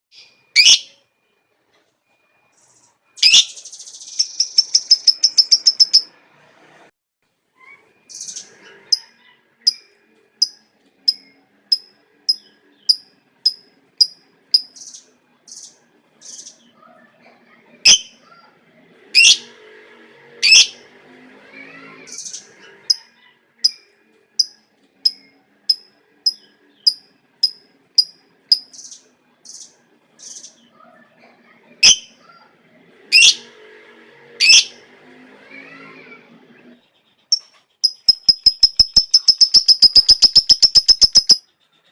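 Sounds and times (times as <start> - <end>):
bird chirping: 2.1 - 6.1, 7.6 - 16.9, 36.7 - 41.6
shrill bird calls: 2.6 - 6.1, 37.8 - 41.4.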